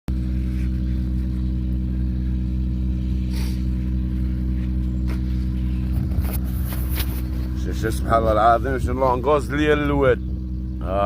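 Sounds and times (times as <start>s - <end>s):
engine droning: 0.1s - 11.0s
brief hiss: 3.3s - 3.6s.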